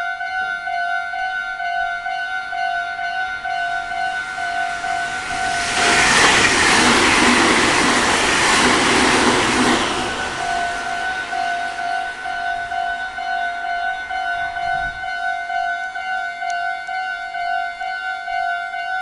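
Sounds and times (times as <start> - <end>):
level crossing alarm ringing: 0.0 - 19.0
train passing at speed: 3.0 - 15.9.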